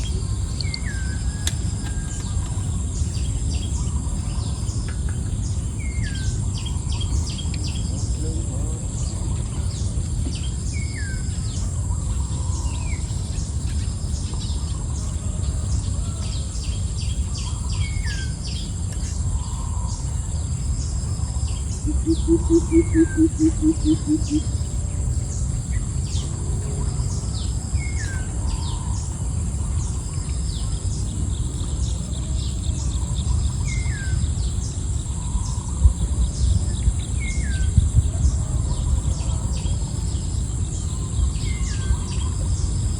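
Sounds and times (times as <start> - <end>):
constant low rumble: 0.0 - 42.9
high insect drone: 0.0 - 42.9
wild birds calling: 0.0 - 42.9
low pulsing animal call: 21.1 - 25.2.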